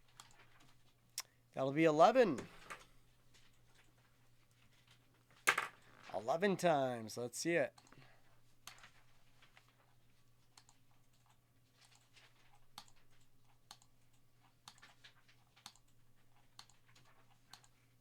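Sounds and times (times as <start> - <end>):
computer mouse clicking: 10.6 - 12.0, 12.8 - 13.9, 14.6 - 15.0, 15.6 - 17.8.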